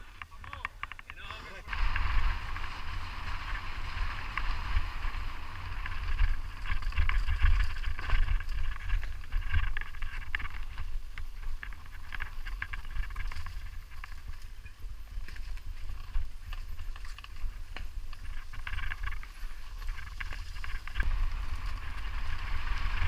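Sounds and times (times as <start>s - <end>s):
crackling clicks over stony ground: 0.0s - 23.0s
wind buffeting microphone: 0.0s - 23.0s
steady hiss: 1.5s - 8.6s.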